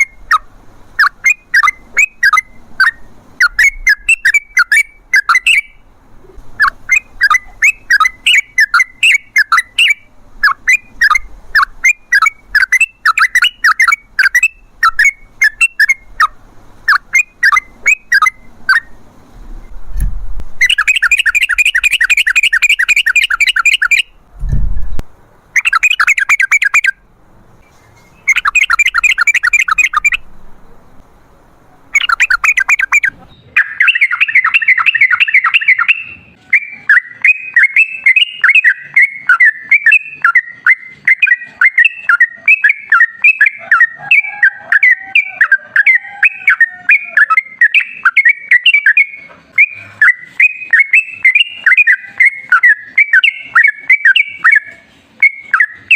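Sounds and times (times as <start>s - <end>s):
bird chattering song: 0.0s - 19.0s, 20.6s - 24.2s, 25.5s - 31.0s, 31.6s - 55.9s
low thump: 24.4s - 25.0s.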